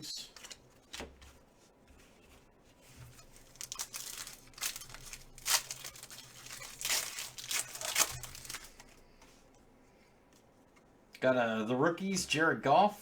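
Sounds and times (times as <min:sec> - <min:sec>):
wrapper tearing and crinkling: 0:03.2 - 0:09.0.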